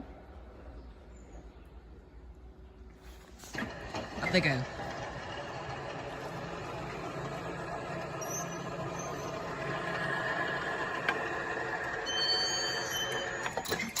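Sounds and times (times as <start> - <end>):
vehicle engine running: 3.1 - 13.4
faint high squeal: 12.0 - 14.0.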